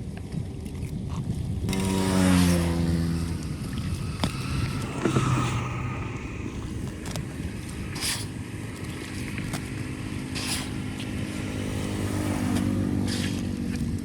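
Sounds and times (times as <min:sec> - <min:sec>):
motor engine running: 0:00.6 - 0:14.0.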